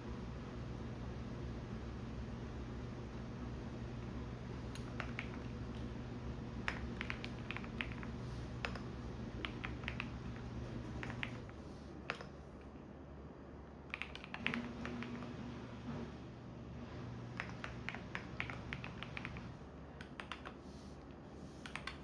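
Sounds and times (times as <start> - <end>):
washing machine hum: 0.0 - 22.0
computer keyboard typing: 3.9 - 12.6, 13.9 - 15.3, 17.3 - 20.6, 21.6 - 22.0.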